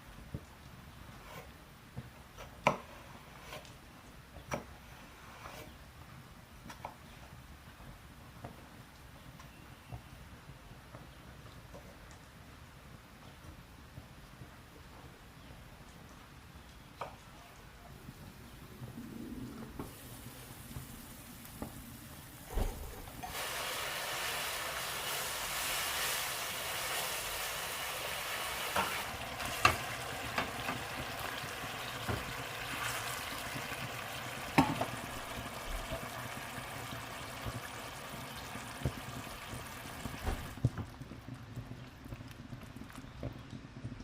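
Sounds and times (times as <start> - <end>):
food sizzling in a hot pan: 19.9 - 22.4, 23.2 - 40.6.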